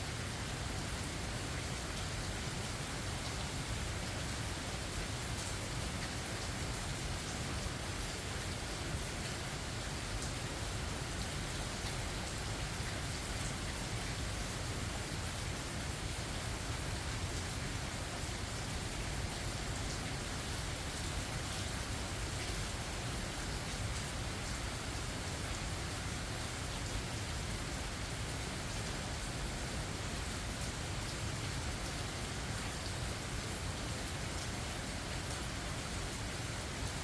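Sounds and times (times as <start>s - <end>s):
rain falling: 0.0s - 37.0s.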